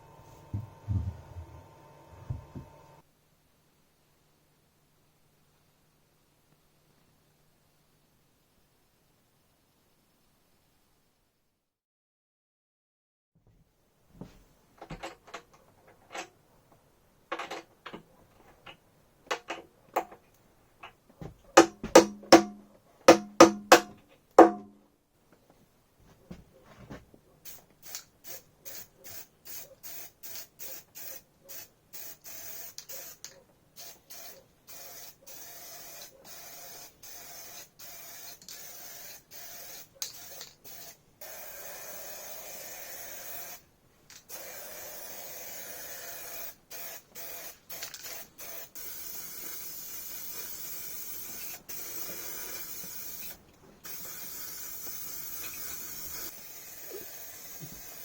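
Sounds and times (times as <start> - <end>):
paint spray hissing: 27.5 - 58.0.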